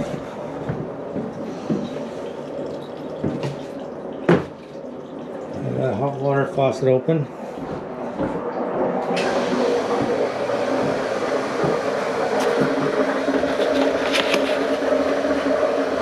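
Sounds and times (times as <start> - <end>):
water rushing from faucet: 1.6 - 6.8, 9.1 - 16.0.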